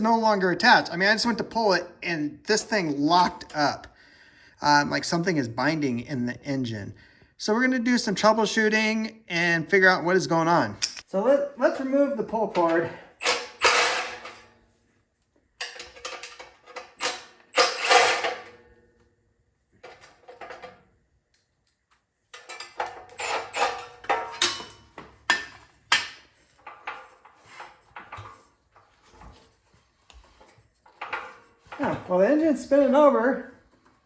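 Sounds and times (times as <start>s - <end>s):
metal parts clinking and rattling: 12.6s - 14.5s, 15.6s - 18.6s, 22.3s - 28.5s.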